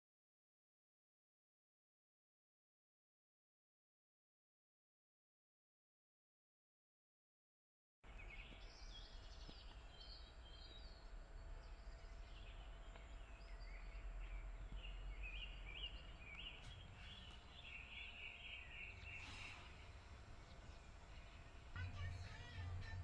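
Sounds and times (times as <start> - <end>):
small birds chirping: 8.0 - 23.0.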